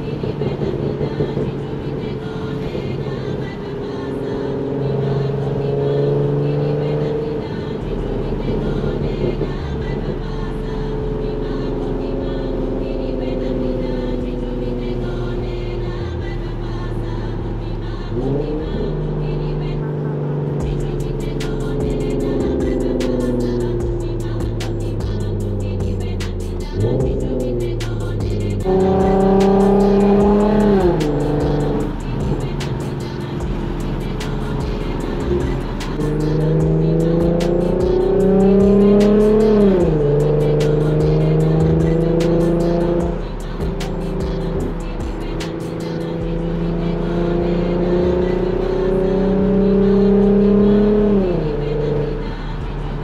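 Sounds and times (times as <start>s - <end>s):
car engine running: 0.0s - 53.0s
music beat with hi-hat: 20.2s - 53.0s.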